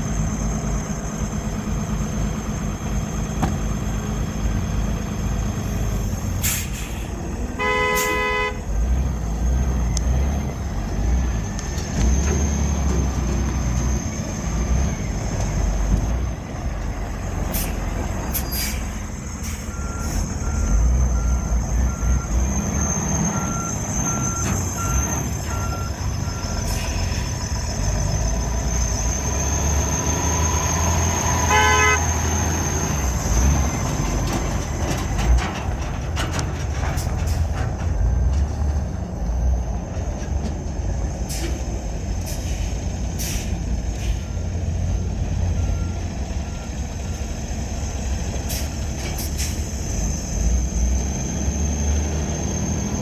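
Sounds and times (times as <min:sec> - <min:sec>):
truck engine rumbling: 0:00.0 - 0:53.0
short horn toot: 0:07.6 - 0:08.6, 0:31.5 - 0:32.1.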